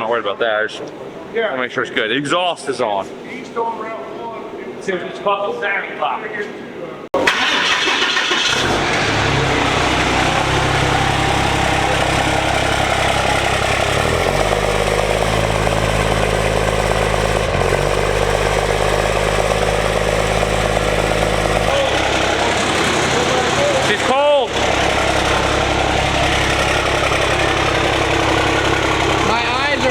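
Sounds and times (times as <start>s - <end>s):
diesel engine starting and idling: 7.2s - 29.9s.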